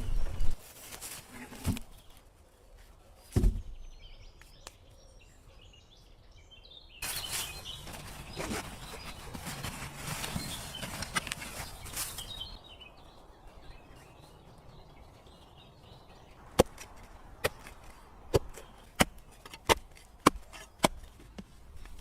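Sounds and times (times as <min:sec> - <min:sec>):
noisy rustling: 0:07.0 - 0:12.8
wood being chopped: 0:16.4 - 0:21.5.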